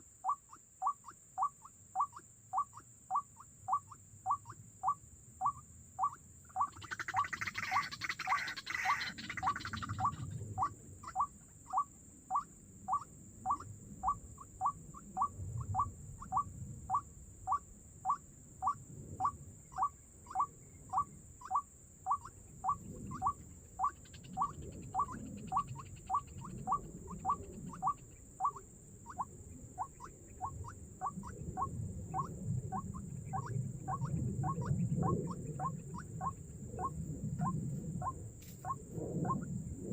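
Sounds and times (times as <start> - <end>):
waterhen calling: 0.2 - 39.4
low rustling and rumbling: 30.2 - 39.9.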